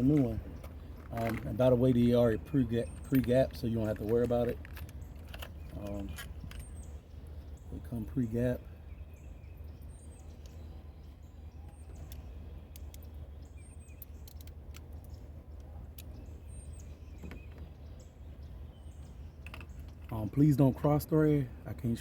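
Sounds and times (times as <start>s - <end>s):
small birds chirping: 0.0s - 22.0s
steady low hum: 0.0s - 22.0s
light clicks: 11.7s - 13.2s.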